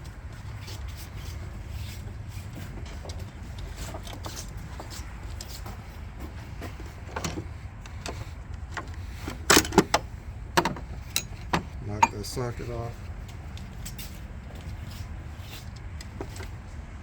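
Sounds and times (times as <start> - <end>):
metal tool clicks and clinks: 11.1 - 11.4, 12.0 - 12.3.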